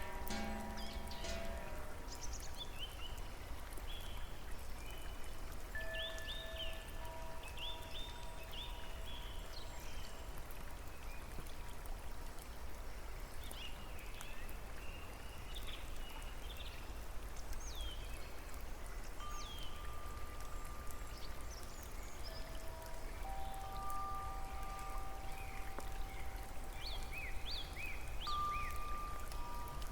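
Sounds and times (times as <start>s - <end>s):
soft held musical tone: 0.0s - 4.2s, 18.2s - 29.9s
small birds chirping: 0.0s - 5.3s, 13.5s - 29.9s
rain falling: 0.0s - 29.9s.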